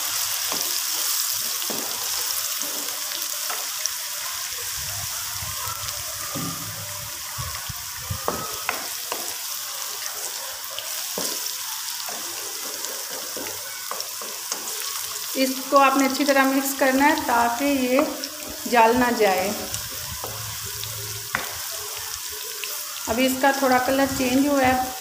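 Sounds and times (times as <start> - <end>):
onions sizzling in oil: 0.0 - 25.0
wooden spoon scraping a pan: 11.0 - 18.8.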